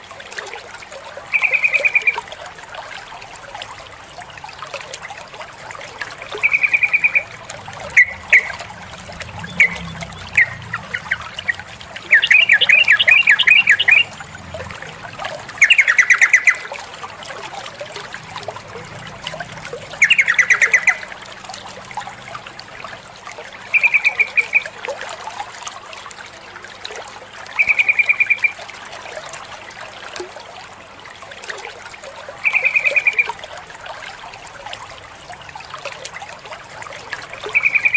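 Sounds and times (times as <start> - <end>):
water trickling: 0.0 - 37.9
bulbul chattering trills: 1.3 - 2.2, 6.2 - 16.8, 17.9 - 21.2, 23.7 - 24.7, 27.6 - 28.6, 32.4 - 33.4, 37.4 - 37.9.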